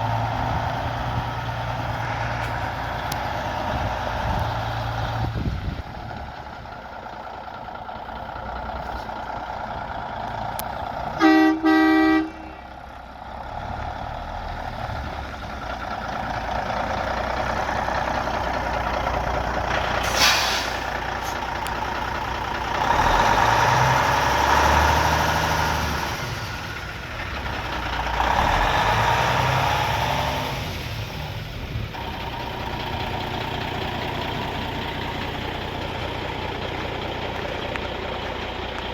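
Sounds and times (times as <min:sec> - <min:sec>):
diesel truck engine running: 0:00.0 - 0:38.9
truck horn blasts: 0:11.1 - 0:12.8
air hiss: 0:20.0 - 0:21.4.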